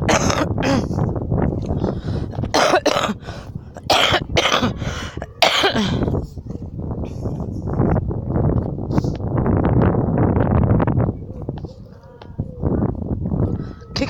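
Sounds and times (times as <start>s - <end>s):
person coughing: 0.0s - 1.0s, 2.5s - 3.2s, 3.8s - 6.1s.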